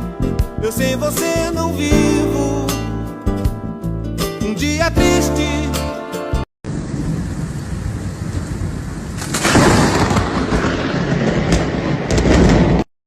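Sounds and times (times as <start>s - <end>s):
heavy rain: 6.7s - 12.9s.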